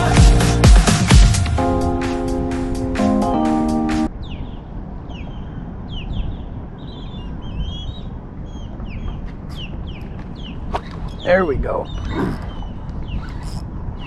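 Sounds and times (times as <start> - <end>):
music: 0.0 - 4.1
birds calling: 4.1 - 14.0.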